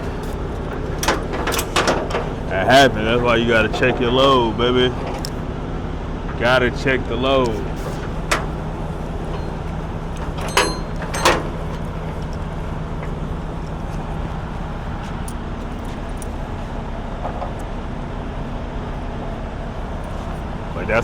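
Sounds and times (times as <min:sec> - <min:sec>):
low vehicle rumble: 0:00.0 - 0:21.0
sharp metallic clanks: 0:07.4 - 0:13.3.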